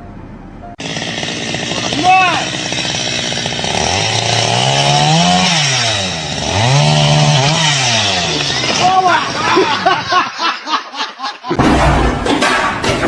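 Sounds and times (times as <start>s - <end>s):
small engine revving: 0.8s - 8.8s.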